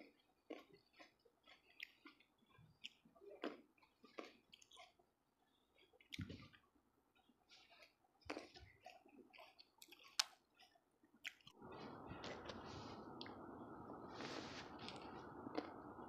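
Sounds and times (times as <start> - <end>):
person chewing fruit: 0.0 - 16.0
wet mouth clicks and smacks: 7.7 - 11.6
steady hiss: 11.6 - 16.0.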